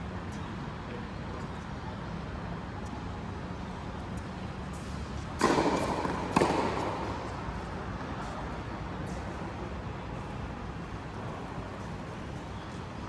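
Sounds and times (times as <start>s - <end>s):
racket striking ball: 5.4s - 7.8s.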